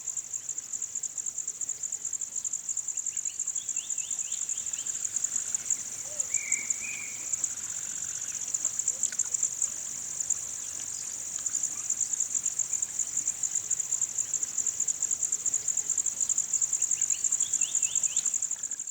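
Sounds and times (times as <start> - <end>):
insects trilling: 0.0 - 18.9.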